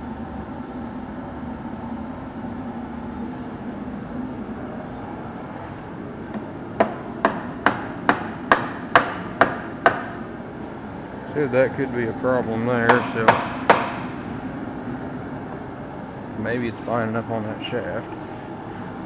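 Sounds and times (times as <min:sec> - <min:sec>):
low hum: 0:00.0 - 0:19.0
hammer blows: 0:12.9 - 0:14.2.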